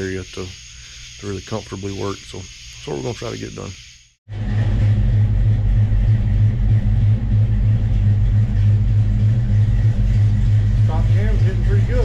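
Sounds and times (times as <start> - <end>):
car engine idling lumpily: 8.0 - 12.0.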